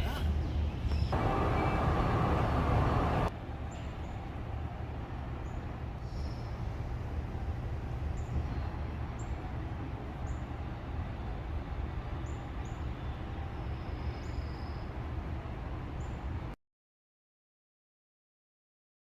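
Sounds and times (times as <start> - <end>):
high bird chirps: 0.9 - 3.3.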